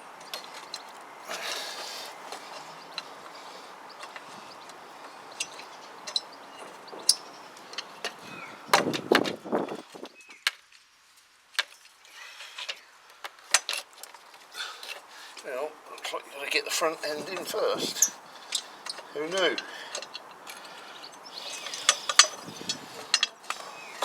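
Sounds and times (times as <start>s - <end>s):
metal parts clinking and knocking: 17.3s - 24.0s.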